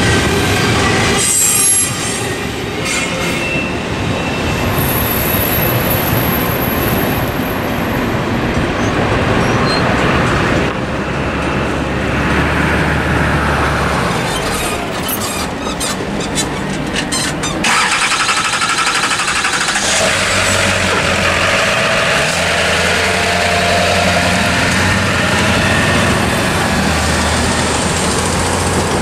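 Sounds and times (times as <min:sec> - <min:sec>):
freight train rumbling past: 0:00.0 - 0:29.0
train wheels squealing: 0:01.1 - 0:06.5, 0:08.8 - 0:09.9.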